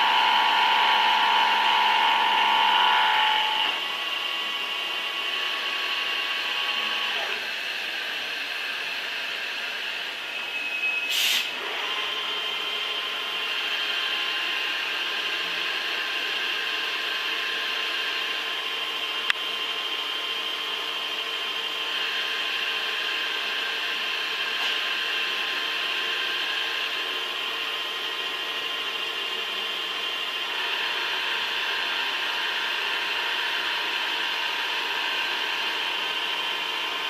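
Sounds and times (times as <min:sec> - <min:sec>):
loud noisy burst: 0:00.0 - 0:04.3
machine tool whining: 0:00.0 - 0:37.0.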